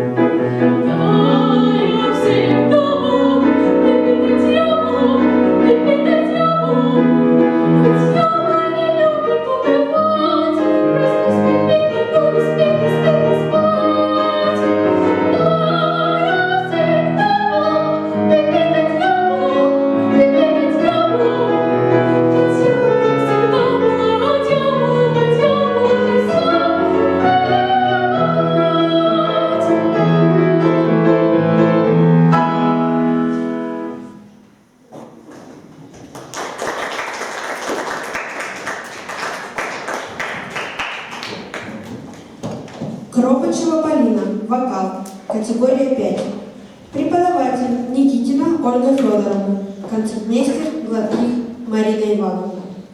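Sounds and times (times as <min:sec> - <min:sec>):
woman singing classical style: 0:00.0 - 0:31.4, 0:43.1 - 0:52.7
piano accompaniment: 0:00.0 - 0:34.9.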